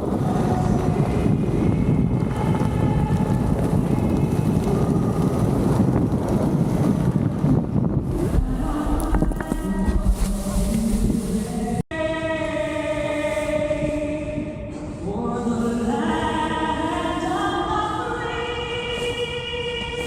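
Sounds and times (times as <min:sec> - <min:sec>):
low engine hum: 0:00.0 - 0:11.8
wind noise on microphone: 0:00.0 - 0:20.0
choir singing held chords: 0:08.1 - 0:20.0.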